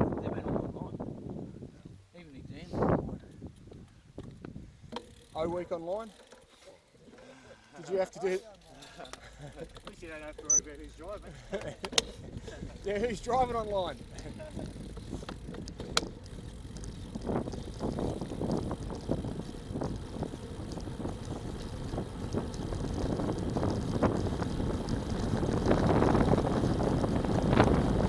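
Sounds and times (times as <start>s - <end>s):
wind buffeting microphone: 12.1s - 28.0s.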